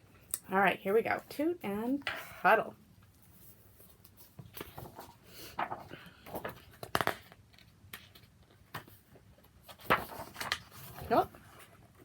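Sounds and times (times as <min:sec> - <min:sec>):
paper rustling: 0:03.1 - 0:12.0
book pages turning: 0:03.7 - 0:12.0.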